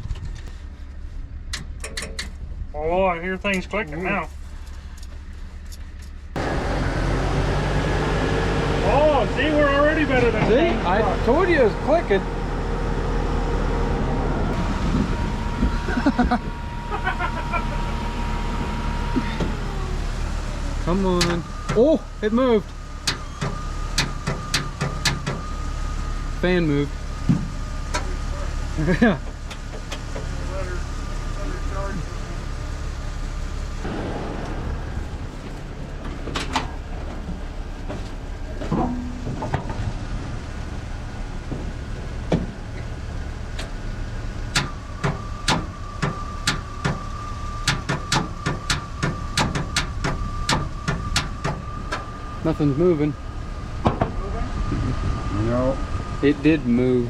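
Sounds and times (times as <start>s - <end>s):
sharp metallic clicks and knocks: 1.5s - 2.4s, 44.5s - 52.1s
engine idling: 8.7s - 57.0s.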